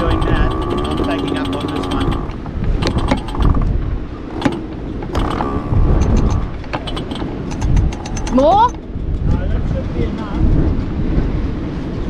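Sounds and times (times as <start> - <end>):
mooring line clicks and creaks: 0.0 - 9.5
low wind rumble: 0.0 - 12.0.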